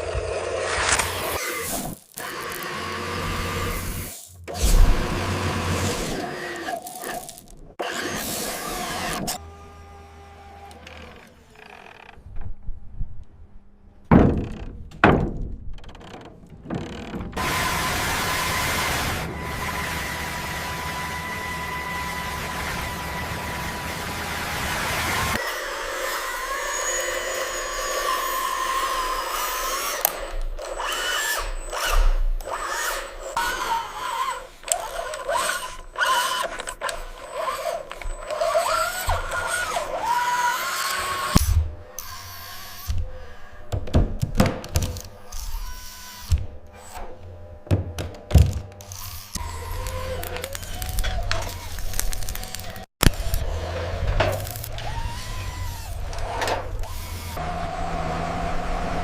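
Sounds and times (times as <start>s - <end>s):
small electric motors whining: 0.0s - 12.2s, 17.4s - 43.8s, 44.8s - 47.6s, 48.2s - 59.0s
loud thunks: 14.1s - 17.4s, 43.7s - 45.0s, 47.6s - 48.7s
small mechanical clicks: 29.4s - 41.4s, 48.8s - 53.6s, 54.2s - 57.4s.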